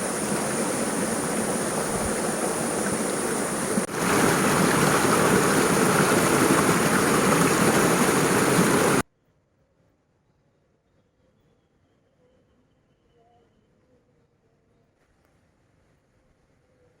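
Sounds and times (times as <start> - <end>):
strong wind blowing: 0.0 - 9.0.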